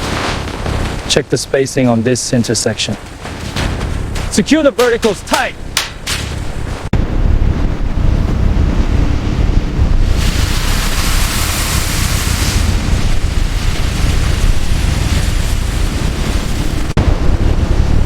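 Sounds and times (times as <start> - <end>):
deep rumble: 0.0 - 18.0
wind buffeting microphone: 0.0 - 18.0
hiss: 10.1 - 12.8.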